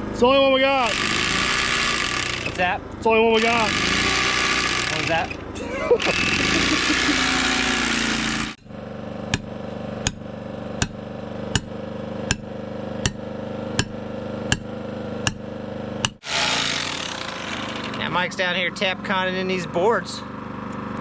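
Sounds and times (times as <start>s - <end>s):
hammer drill boring concrete: 0.8s - 2.8s, 3.4s - 8.6s, 16.2s - 18.2s.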